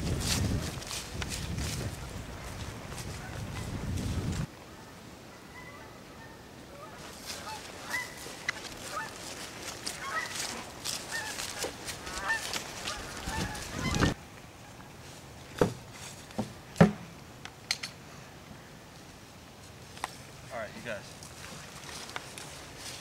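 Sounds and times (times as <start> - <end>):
geese honking: 4.8 - 14.2
sharp knocks: 16.4 - 17.1.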